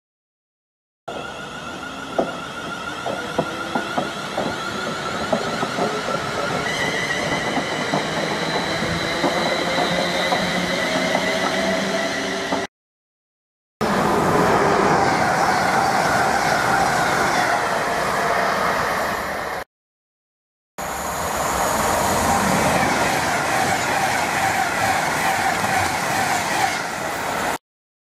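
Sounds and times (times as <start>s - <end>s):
train wheels clicking: 1.1s - 11.9s, 22.9s - 27.1s
electric train motor whining: 1.1s - 12.6s
diesel train passing at speed: 1.1s - 12.7s, 13.8s - 19.6s, 20.8s - 27.6s.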